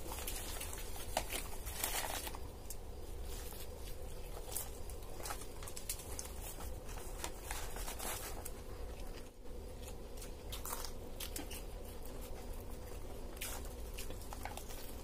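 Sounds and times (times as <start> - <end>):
paper wrapper rustling: 0.0 - 2.5, 3.2 - 9.2
people chewing food: 0.0 - 15.0
steady low hum: 0.0 - 15.0.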